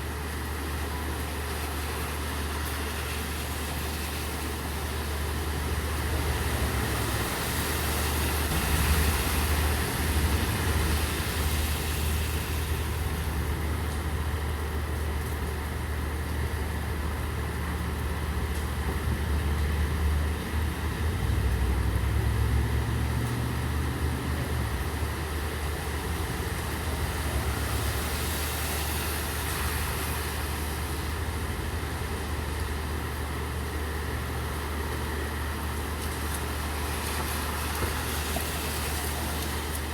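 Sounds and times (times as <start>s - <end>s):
low engine rumble: 0.0s - 39.9s
steady rain: 0.0s - 39.9s
tyres hissing on wet road: 0.0s - 39.9s.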